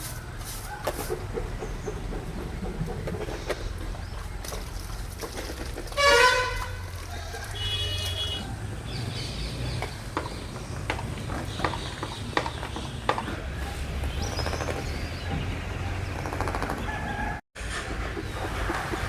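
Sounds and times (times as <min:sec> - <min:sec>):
vehicle horn toot: 0:05.9 - 0:06.9, 0:07.5 - 0:08.5.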